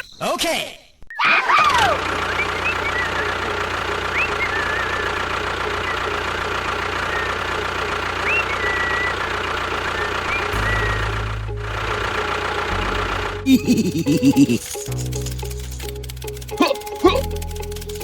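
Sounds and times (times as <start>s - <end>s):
engine humming: 1.8s - 18.0s
short chirping whistles: 2.2s - 5.2s, 8.2s - 11.1s.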